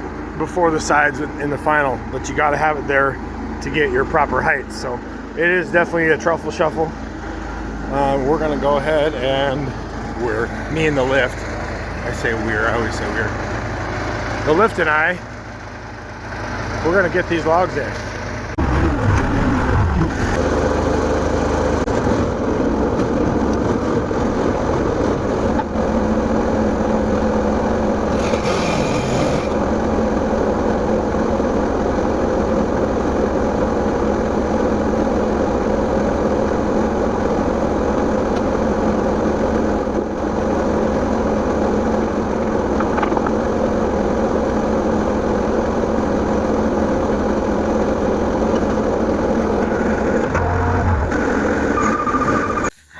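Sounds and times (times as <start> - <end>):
machine engine running: 0.0 - 52.7.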